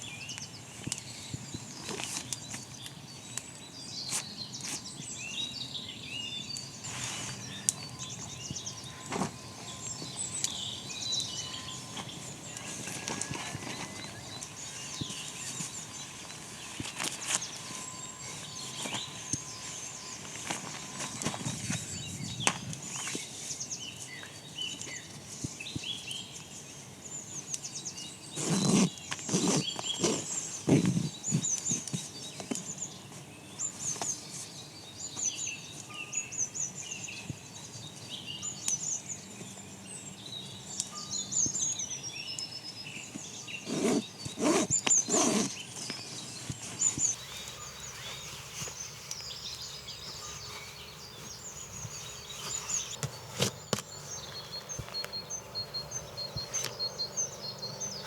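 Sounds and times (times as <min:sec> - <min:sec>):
small birds chirping: 0:00.0 - 0:33.0, 0:36.4 - 0:58.0
handling noises: 0:47.1 - 0:58.0.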